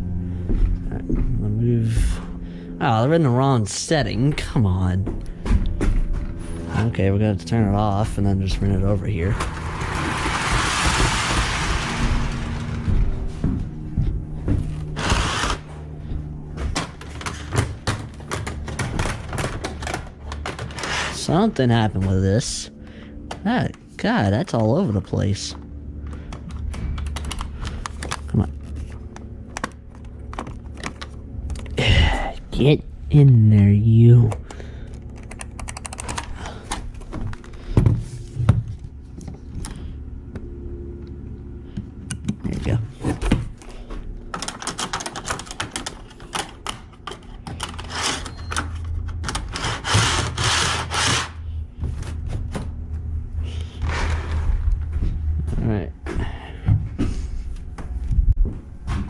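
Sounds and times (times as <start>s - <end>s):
steady low hum: 0.0s - 59.0s
plastic and metal pieces clicking: 44.3s - 49.6s.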